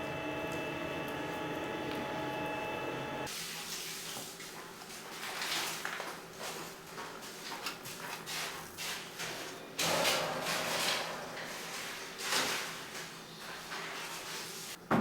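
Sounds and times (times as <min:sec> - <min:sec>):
scraping and tapping of bakery work: 0:03.5 - 0:15.0.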